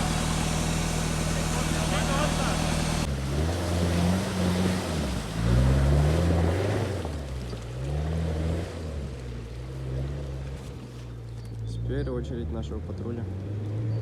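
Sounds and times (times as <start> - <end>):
car engine revving hard: 0.0 - 10.4.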